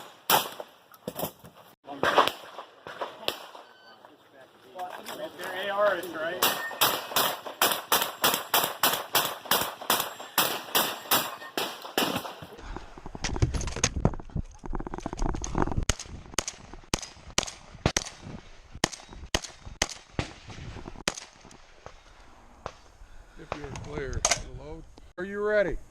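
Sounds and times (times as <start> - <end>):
semi-automatic gunfire: 6.4 - 12.4.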